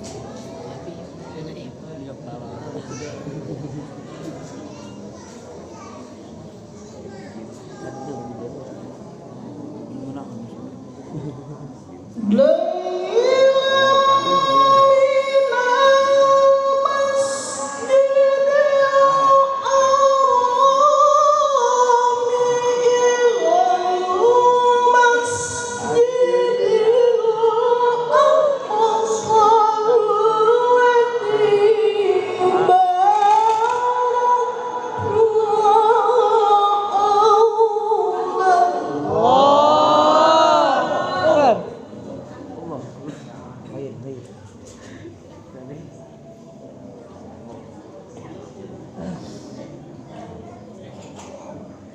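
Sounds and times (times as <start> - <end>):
person reciting melodically: 12.2 - 42.0.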